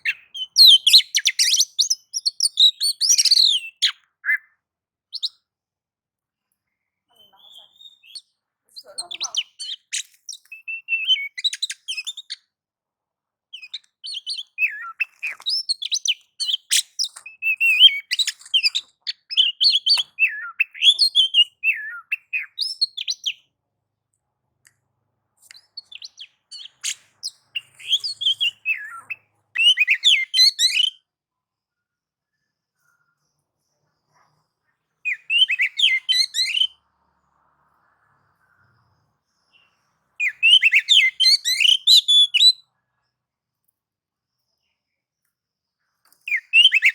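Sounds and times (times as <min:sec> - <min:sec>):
bird singing whistles and chatter: 0:00.0 - 0:04.5, 0:07.2 - 0:12.4, 0:13.6 - 0:23.4, 0:25.5 - 0:31.0, 0:35.0 - 0:36.8, 0:39.5 - 0:42.6, 0:46.3 - 0:46.9.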